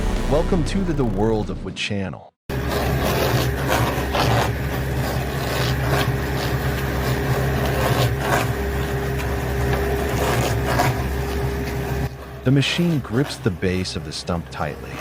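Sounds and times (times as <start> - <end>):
heavy machine engine running: 0.0 - 1.7
steady machine whine: 0.0 - 1.8.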